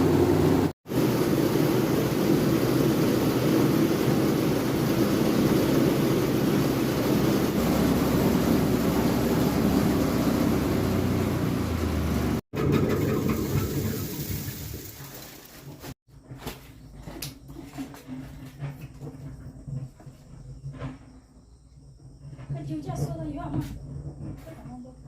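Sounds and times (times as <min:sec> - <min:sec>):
broad rushing noise: 0:00.0 - 0:12.4
engine humming: 0:00.0 - 0:14.6.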